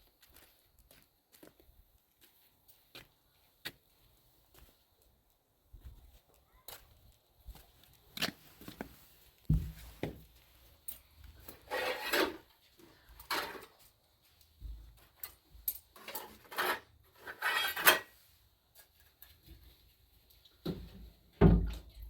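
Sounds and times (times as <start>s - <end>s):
rubbing and scraping strokes: 11.6s - 12.5s, 16.2s - 18.4s.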